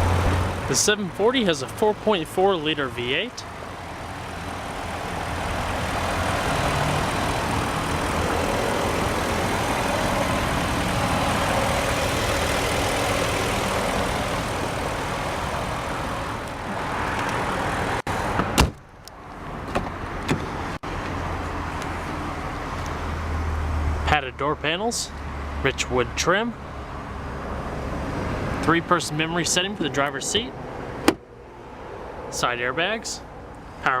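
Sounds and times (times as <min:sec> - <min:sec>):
car engine idling: 0:00.0 - 0:19.2
loud thump: 0:18.4 - 0:18.8.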